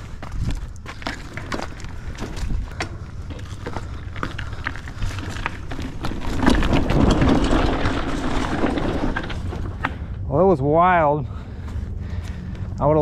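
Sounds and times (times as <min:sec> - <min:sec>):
bike clicks and rattles: 0:00.0 - 0:10.2
tyres rumbling on dirt trail: 0:00.0 - 0:13.0.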